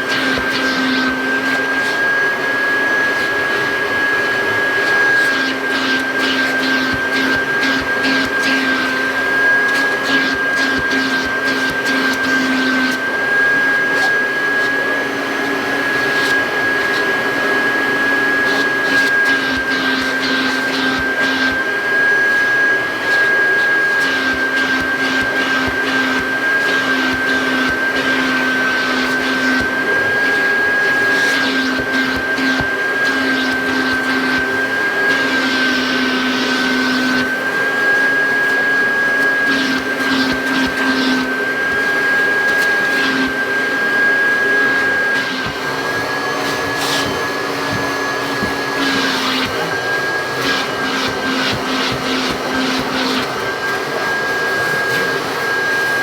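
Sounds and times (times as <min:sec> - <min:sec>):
vacuum cleaner whine: 0:00.0 - 0:56.0.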